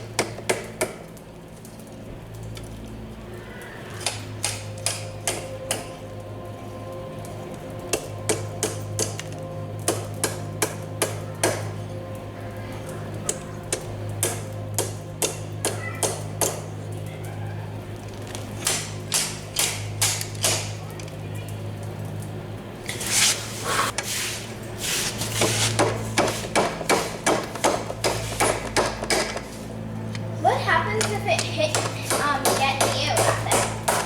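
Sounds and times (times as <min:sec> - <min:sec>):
steady low hum: 0:00.0 - 0:34.0
hammer striking metal on anvil: 0:04.0 - 0:06.0, 0:07.9 - 0:09.2, 0:13.7 - 0:16.6, 0:25.8 - 0:29.5, 0:31.0 - 0:34.0
hissing scratchy noise: 0:22.6 - 0:34.0.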